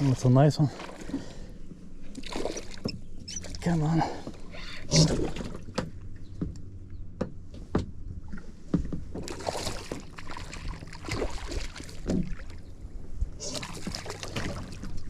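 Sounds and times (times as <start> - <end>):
water splashing: 2.1 - 5.8, 9.2 - 12.7, 13.4 - 15.0.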